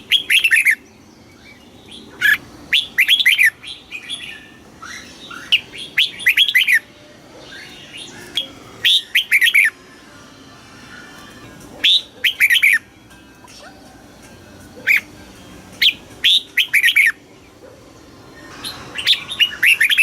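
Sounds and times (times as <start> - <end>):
bird whistled notes: 0.0 - 9.8, 11.8 - 13.6, 15.8 - 17.2, 18.4 - 20.0.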